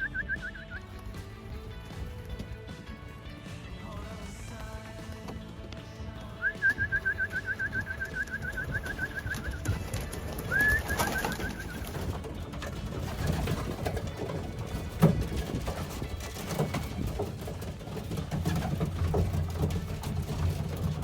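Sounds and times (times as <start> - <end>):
bird chirping: 0.0 - 1.2, 6.3 - 12.1.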